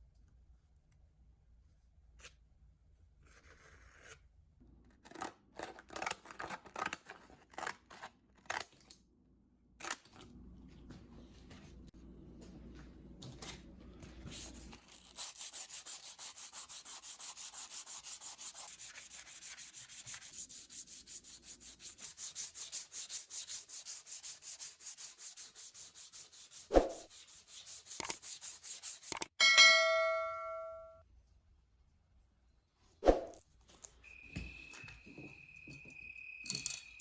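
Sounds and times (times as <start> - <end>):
sanding strokes on metal: 14.4 - 29.3
sharp metallic ding: 29.4 - 31.0.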